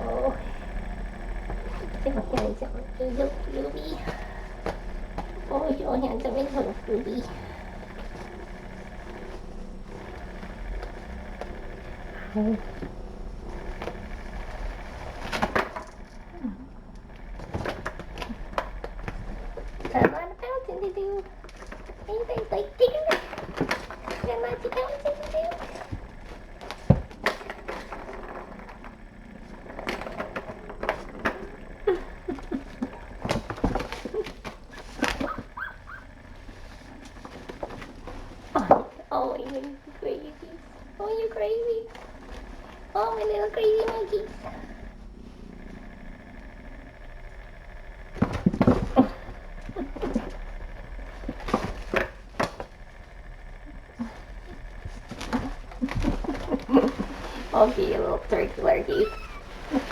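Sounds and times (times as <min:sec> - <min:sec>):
toys clattering on floor: 0:00.0 - 0:20.3, 0:21.1 - 0:46.8, 0:47.5 - 0:59.9
kittens scampering and scuffling: 0:00.0 - 0:59.9
kitten squeaks: 0:35.1 - 0:36.1, 0:58.9 - 0:59.5.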